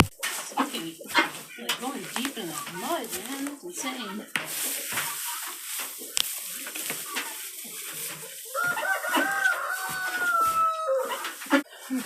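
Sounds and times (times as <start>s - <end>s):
rustling: 0.0s - 12.0s
rooster crowing: 8.5s - 11.4s.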